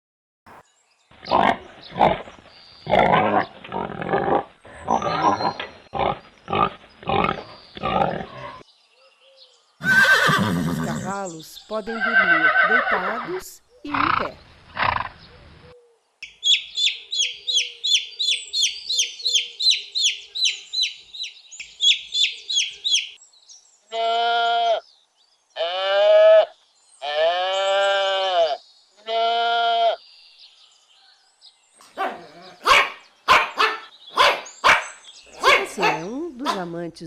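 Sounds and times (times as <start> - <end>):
high animal chirp: 1.2 - 8.6, 16.2 - 23.2, 31.8 - 36.6
animal bleats: 9.8 - 11.2, 11.9 - 15.1, 23.9 - 24.8, 25.6 - 30.0
sharp bark-like calls: 31.8 - 36.7.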